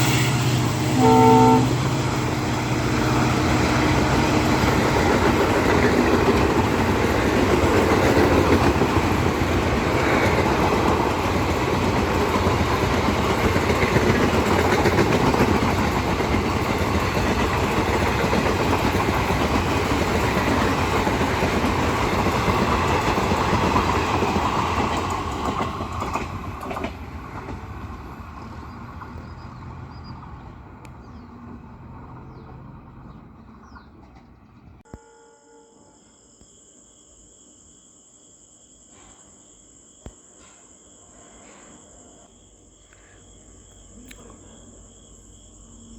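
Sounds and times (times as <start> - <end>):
train wagons rolling on rails: 0.0 - 34.9.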